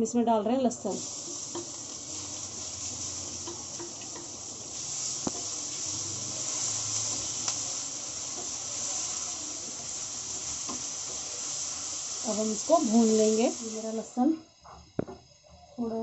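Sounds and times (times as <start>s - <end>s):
garlic sizzling in hot oil: 0.0s - 16.0s
wooden spatula tapping and scraping: 1.5s - 1.8s, 3.4s - 4.4s, 5.2s - 5.6s.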